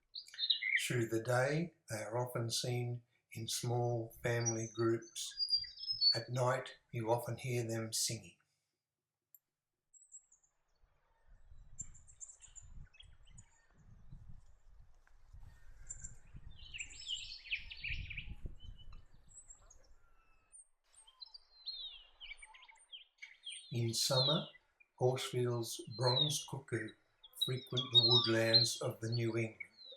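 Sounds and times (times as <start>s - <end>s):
small birds chirping: 0.0s - 8.3s, 9.9s - 29.9s
frogmouth low pulsing call: 25.8s - 29.9s.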